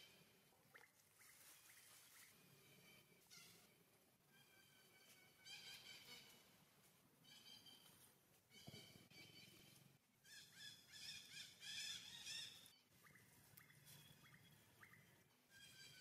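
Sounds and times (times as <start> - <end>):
bird chirping calls: 8.5 - 16.0.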